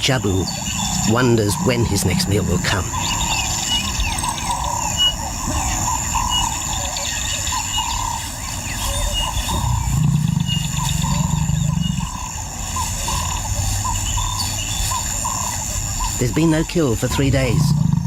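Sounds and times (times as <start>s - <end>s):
insects trilling: 0.0s - 18.0s
low rumbling: 0.0s - 18.0s.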